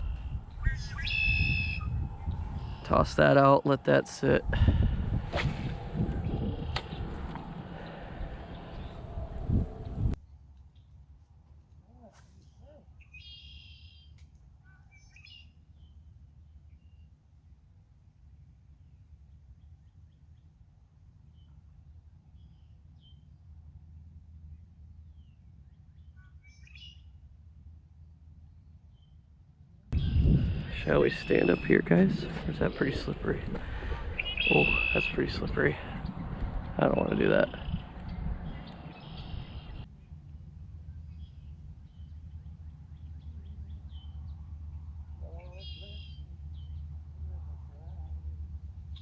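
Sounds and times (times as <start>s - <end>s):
bird chirps: 0.0s - 2.9s, 12.0s - 17.1s, 25.1s - 27.1s, 34.2s - 35.2s, 37.0s - 40.2s, 40.8s - 49.0s
steady low rumble: 0.0s - 10.5s, 15.6s - 49.0s
faint bird chirps: 11.8s - 17.2s, 25.1s - 27.1s, 45.2s - 48.3s.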